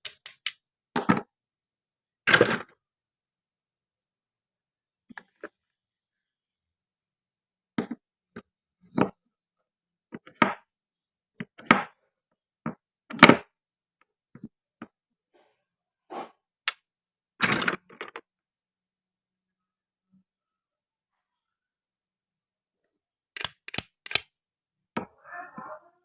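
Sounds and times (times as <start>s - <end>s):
toy fruit pieces clicking on board: 23.4s - 24.2s.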